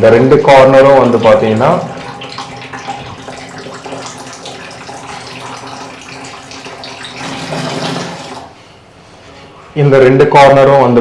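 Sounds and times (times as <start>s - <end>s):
water running from tap: 0.0s - 8.6s.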